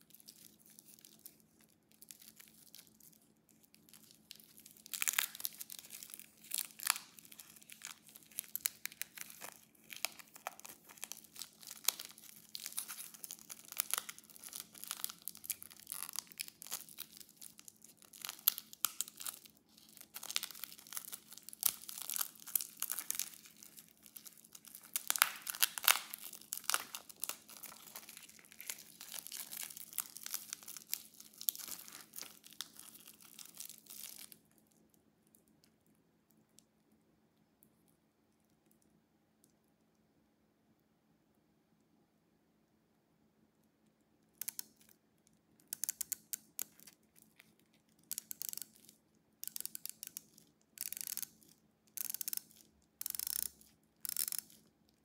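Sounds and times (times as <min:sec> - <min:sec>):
packaging crinkling and tearing: 0:00.0 - 0:35.0, 0:45.7 - 0:51.6
faint steady hum: 0:00.0 - 0:55.0.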